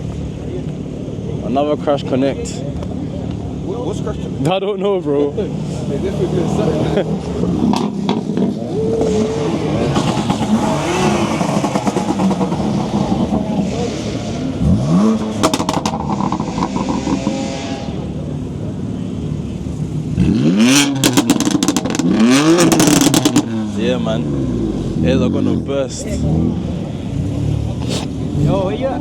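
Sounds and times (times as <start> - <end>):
car engines revving hard: 0.0 - 29.0
exhaust pops and bangs: 7.6 - 8.6, 14.7 - 17.5, 20.8 - 23.5.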